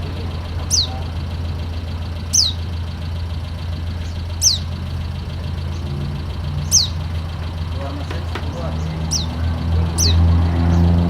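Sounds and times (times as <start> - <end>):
steady low hum: 0.0 - 10.5
high falling bird whistle: 2.3 - 2.6, 4.4 - 4.8.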